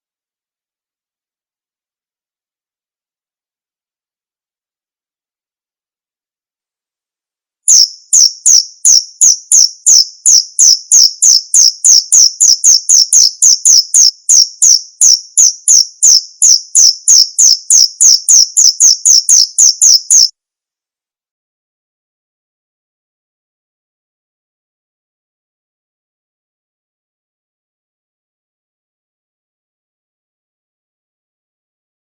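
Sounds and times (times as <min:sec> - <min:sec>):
cricket chirping: 0:07.7 - 0:20.3.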